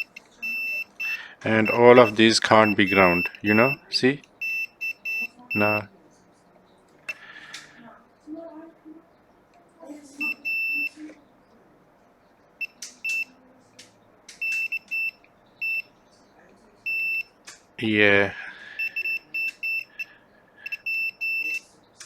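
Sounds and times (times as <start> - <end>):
short high multimeter beeps: 0.0 - 3.8, 4.4 - 5.9, 10.2 - 11.0, 12.6 - 13.3, 14.4 - 16.0, 16.9 - 17.4, 18.8 - 21.7.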